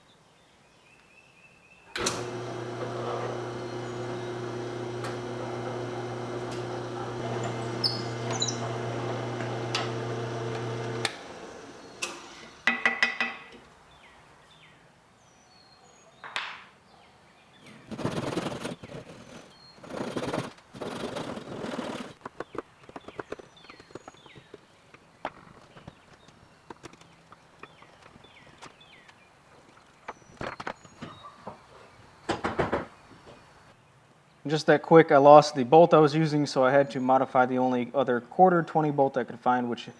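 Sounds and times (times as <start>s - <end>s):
power tool motor running: 2.0s - 12.7s.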